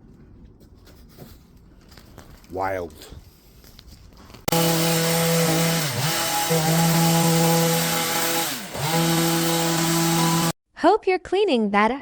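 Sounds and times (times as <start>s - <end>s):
two-stroke engine cutting tool: 4.5s - 10.6s.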